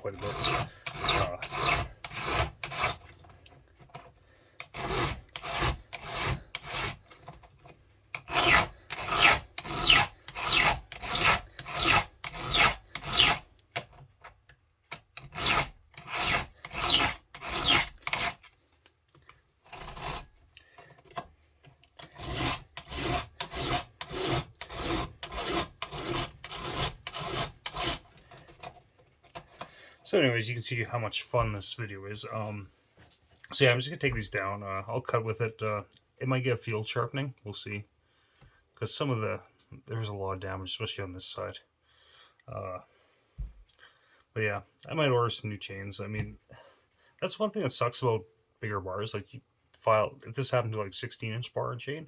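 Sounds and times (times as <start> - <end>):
file rasping on chainsaw chain: 0.0 - 3.4, 4.6 - 7.4, 8.2 - 13.5, 15.2 - 18.5, 19.7 - 20.3, 22.0 - 28.7.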